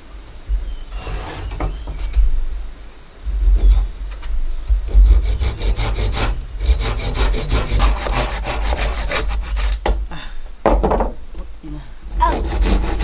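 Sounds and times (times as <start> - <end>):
hand saw cutting wood: 0.8 - 2.4, 3.2 - 10.0, 12.1 - 13.0.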